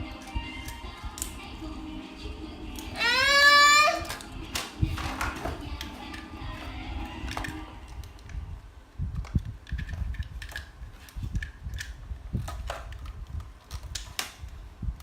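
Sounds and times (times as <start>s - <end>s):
plastic toy parts clicking: 9.1s - 14.6s.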